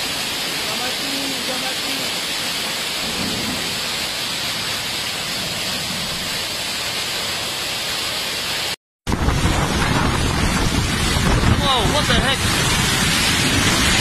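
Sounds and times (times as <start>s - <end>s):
heavy rain downpour: 0.0s - 14.0s.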